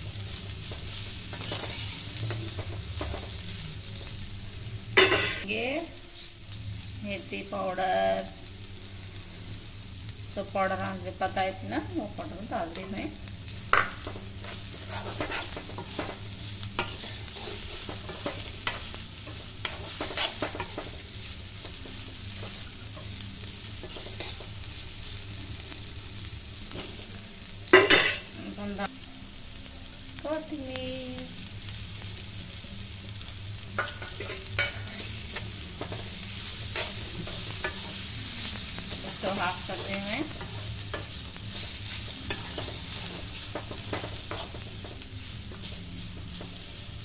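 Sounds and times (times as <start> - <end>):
vegetables sizzling in oil: 0.0 - 47.0
metal spoon scraping pan: 1.3 - 2.6, 13.7 - 16.2, 16.8 - 21.0, 33.8 - 36.1, 39.0 - 44.6.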